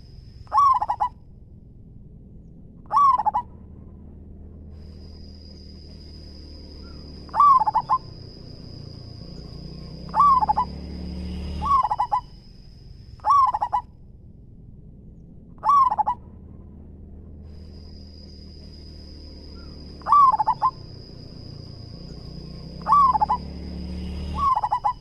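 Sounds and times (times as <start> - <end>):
dove cooing: 0.0 - 1.1, 2.8 - 3.5, 6.8 - 8.8, 9.4 - 10.8, 11.6 - 12.4, 13.2 - 13.9, 15.6 - 16.3, 19.6 - 21.6, 22.2 - 23.5, 24.2 - 25.0
faint high whine: 0.0 - 25.0.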